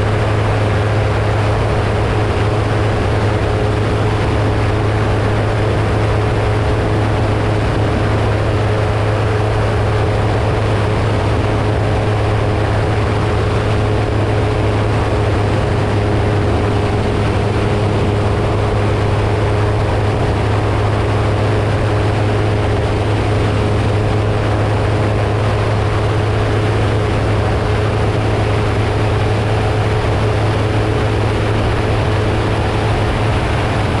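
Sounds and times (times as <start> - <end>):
light aircraft engine droning: 0.0 - 34.0.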